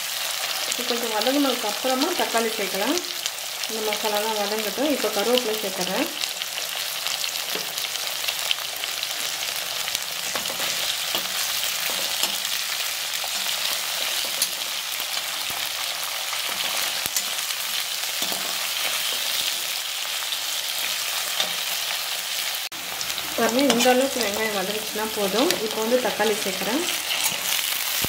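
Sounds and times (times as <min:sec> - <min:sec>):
spices sizzling in hot oil: 0:00.0 - 0:28.0
metal spatula scraping pan: 0:26.9 - 0:28.0.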